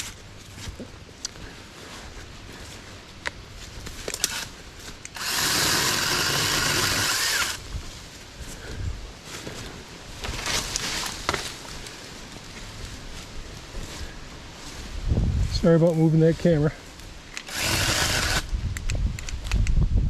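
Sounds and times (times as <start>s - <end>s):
cordless chainsaw running: 5.1s - 7.7s, 17.4s - 18.5s.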